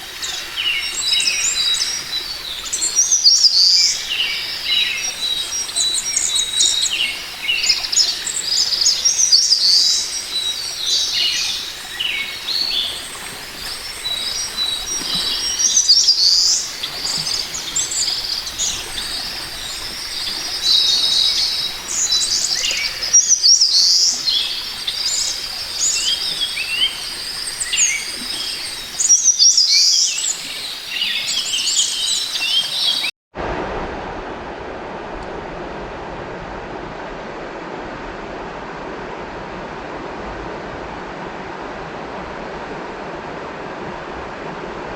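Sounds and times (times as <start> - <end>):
small birds chirping: 0.0 - 33.1
steady rushing noise: 33.4 - 44.9.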